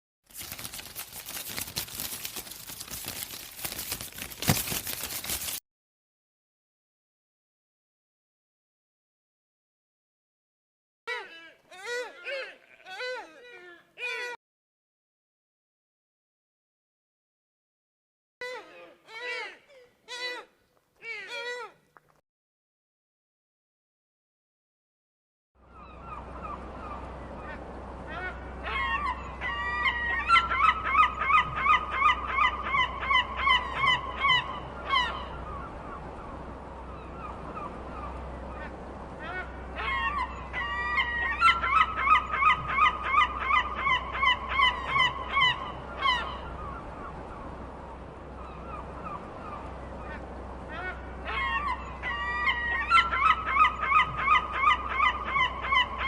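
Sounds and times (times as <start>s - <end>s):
steady low hum: 25.6s - 56.0s
geese honking: 48.4s - 56.0s.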